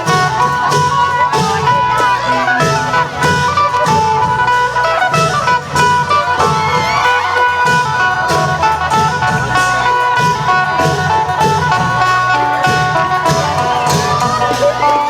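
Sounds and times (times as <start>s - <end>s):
drums and percussion beat: 0.0s - 15.0s
plucked lute melody: 0.0s - 15.0s.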